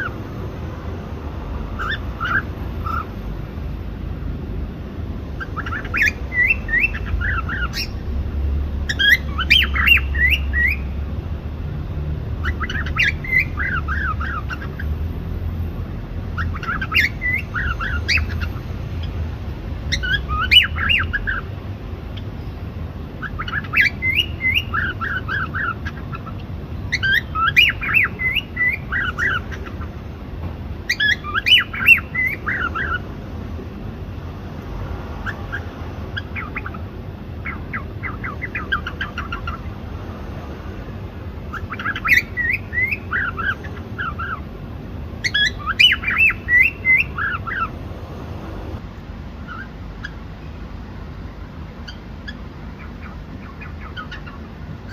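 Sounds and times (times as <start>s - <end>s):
cockatiel squawky chirps: 1.8s - 3.1s, 5.4s - 8.0s, 8.9s - 10.9s, 12.4s - 14.9s, 16.4s - 19.1s, 19.9s - 21.5s, 23.2s - 29.9s, 30.9s - 33.0s, 35.2s - 36.8s, 37.4s - 39.7s, 41.5s - 44.4s, 45.2s - 47.7s, 49.5s - 50.2s, 51.8s - 54.9s.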